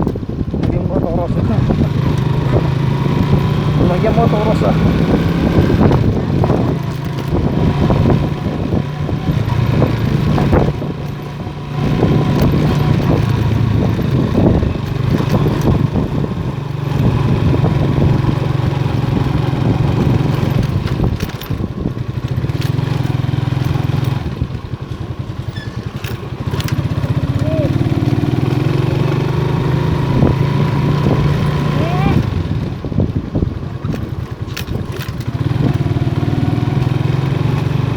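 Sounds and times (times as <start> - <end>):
motorcycle engine running: 0.0 - 37.9
rough road noise: 0.0 - 37.9
wind noise: 0.0 - 37.9.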